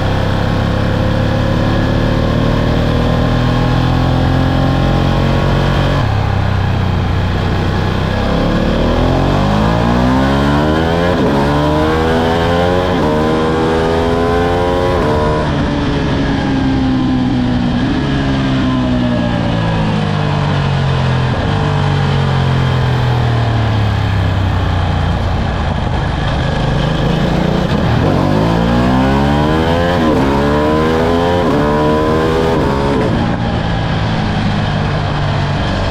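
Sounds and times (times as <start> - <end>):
motorcycle engine accelerating: 0.0 - 35.9.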